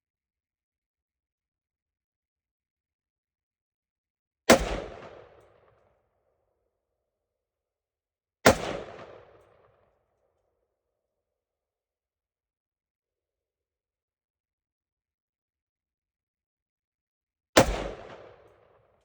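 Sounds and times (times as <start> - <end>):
rifle shots: 4.5 - 5.4, 8.5 - 9.4, 17.6 - 18.5.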